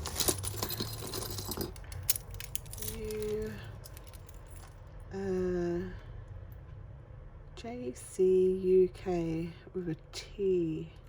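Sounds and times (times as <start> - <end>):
beads clinking and rattling: 0.0 - 4.8.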